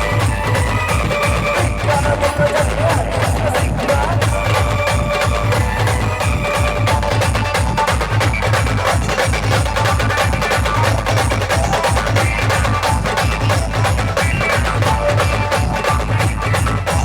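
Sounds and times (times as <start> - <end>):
bass drum and percussion beat: 0.0 - 17.0.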